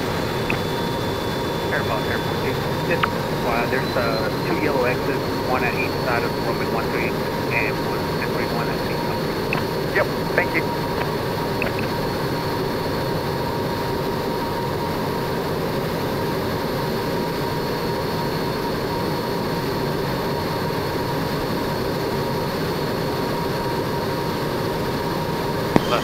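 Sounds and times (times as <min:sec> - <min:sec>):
jet engine: 0:00.0 - 0:26.0
thin steady whine: 0:00.0 - 0:26.0.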